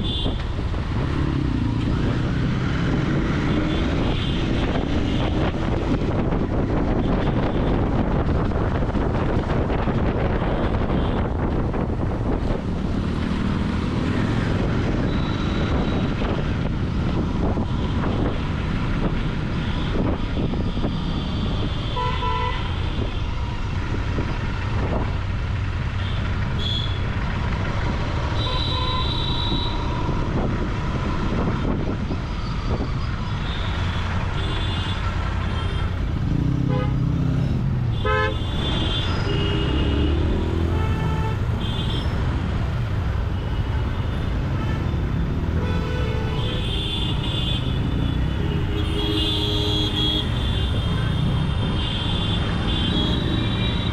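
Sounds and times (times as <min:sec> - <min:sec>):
motorcycle engine and exhaust: 0:00.0 - 0:53.9
vehicle horns honking: 0:21.3 - 0:23.2, 0:26.0 - 0:27.1, 0:28.3 - 0:30.0, 0:36.6 - 0:37.0, 0:37.9 - 0:42.2, 0:43.4 - 0:53.9.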